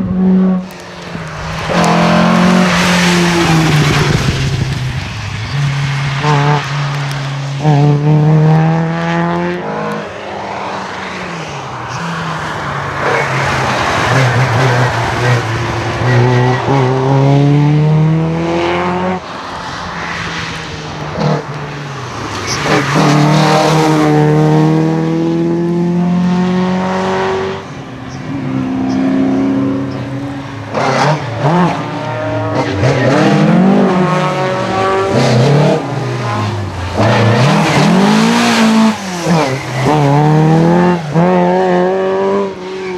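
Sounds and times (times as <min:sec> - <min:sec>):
rally car engines revving: 0:00.0 - 0:42.9.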